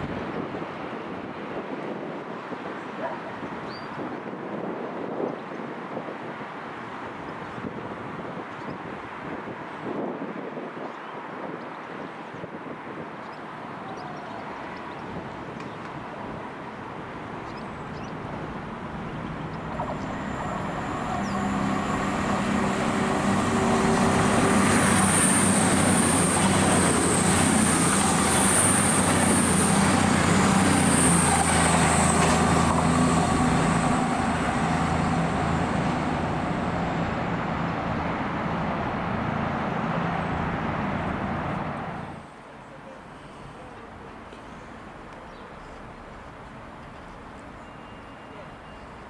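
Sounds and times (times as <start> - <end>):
train engine drone: 15.8 - 49.0
high whine: 18.6 - 39.4.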